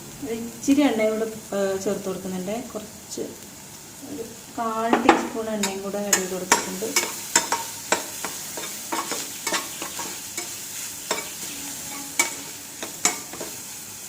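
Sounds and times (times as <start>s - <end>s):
vegetables sizzling in oil: 0.0s - 14.0s
spatula clacking against pan: 5.0s - 11.4s, 12.1s - 13.6s.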